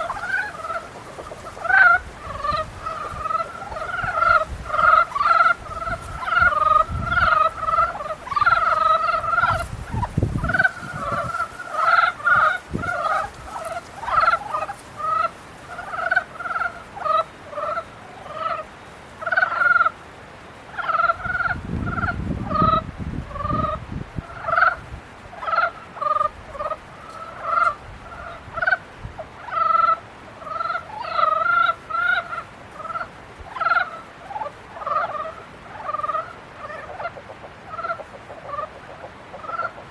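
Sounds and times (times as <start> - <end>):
frogs calling: 0.0 - 39.9.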